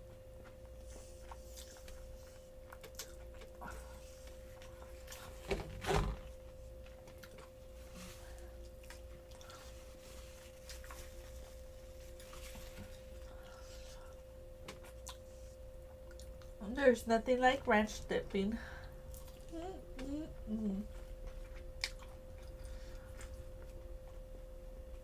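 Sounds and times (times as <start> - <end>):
close chewing of food: 0.0 - 5.5, 6.4 - 16.6, 18.9 - 19.6, 21.1 - 25.0
steady faint hum: 0.0 - 25.0.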